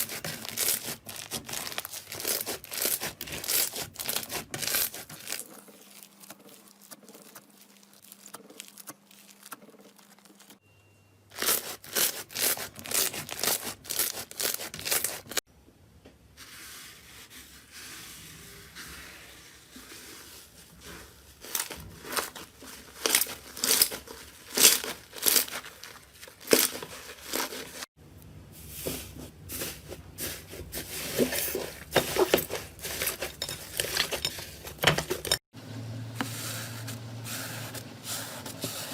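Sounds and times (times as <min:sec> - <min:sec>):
slime crackling and popping: 0:00.1 - 0:10.6.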